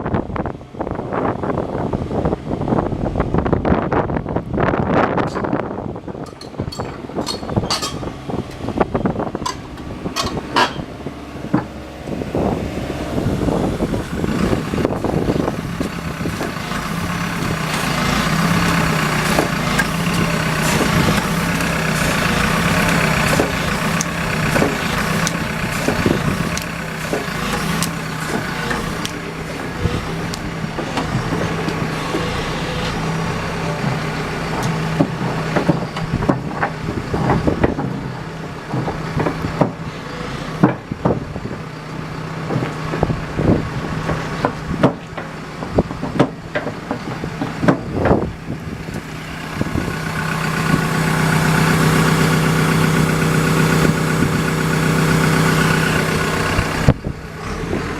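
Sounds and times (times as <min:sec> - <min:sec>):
excavator diesel engine: 0:00.0 - 0:57.9
machine clanks and knocks: 0:06.2 - 0:08.7, 0:09.4 - 0:11.7, 0:33.8 - 0:39.9, 0:40.6 - 0:41.7, 0:42.4 - 0:48.3.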